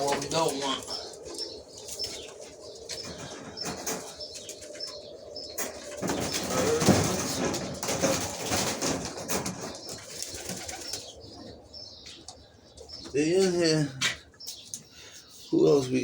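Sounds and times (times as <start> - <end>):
pigeons cooing: 0.0 - 16.0
pigeon wings flapping: 5.9 - 11.0.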